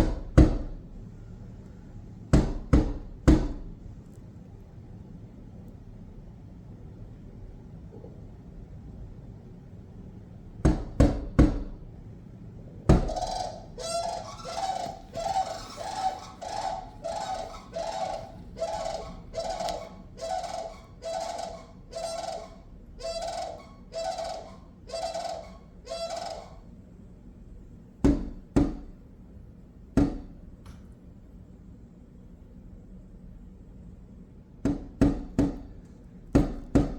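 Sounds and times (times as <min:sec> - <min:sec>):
crane calls: 0:12.9 - 0:26.8.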